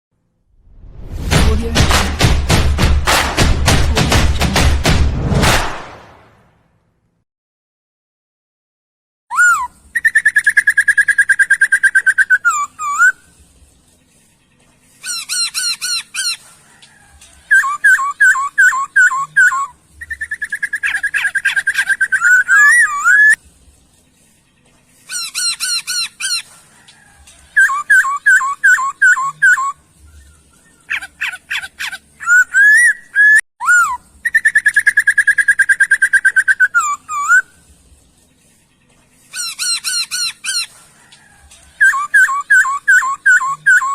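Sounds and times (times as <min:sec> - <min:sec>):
songbird singing: 0:09.3 - 0:43.9.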